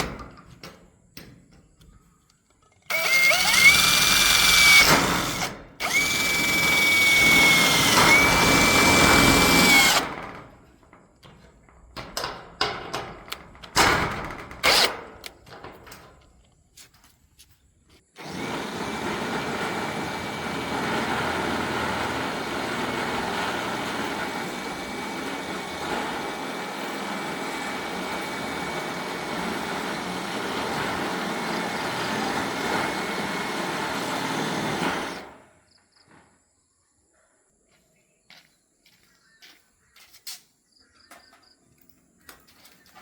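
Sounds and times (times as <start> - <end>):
motor-driven machine whining: 2.9 - 10.2, 14.6 - 14.9, 18.2 - 35.4.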